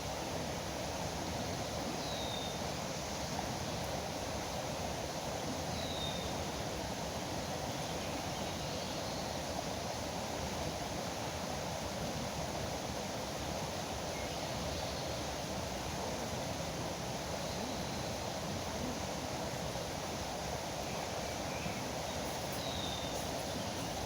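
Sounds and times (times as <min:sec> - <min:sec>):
river water rushing: 0:15.2 - 0:24.0.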